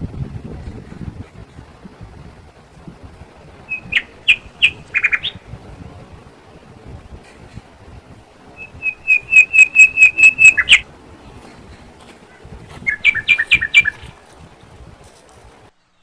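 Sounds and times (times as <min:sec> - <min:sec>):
bird chirping sharply: 0:03.7 - 0:05.5, 0:08.6 - 0:10.8, 0:12.3 - 0:14.2.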